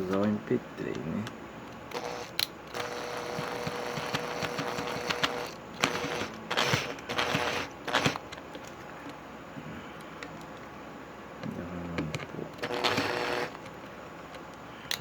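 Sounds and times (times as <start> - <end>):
power screwdriver motor running: 1.9 - 8.2, 12.6 - 13.6.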